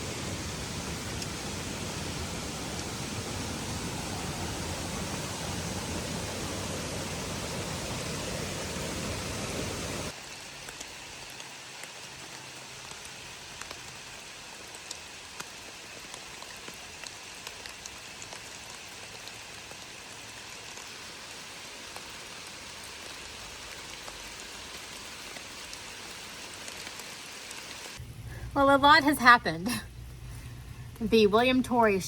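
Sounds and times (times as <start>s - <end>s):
steady rain: 0.0s - 31.0s
raindrops clicking close by: 0.1s - 3.1s, 10.1s - 28.0s.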